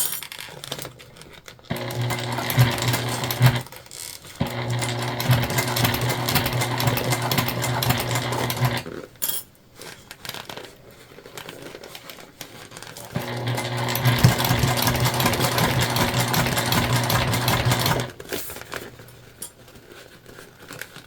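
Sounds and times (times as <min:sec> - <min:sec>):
sewing machine stitching: 0:01.6 - 0:09.0, 0:12.8 - 0:18.6
faint handling sounds: 0:08.8 - 0:13.2, 0:18.1 - 0:21.0.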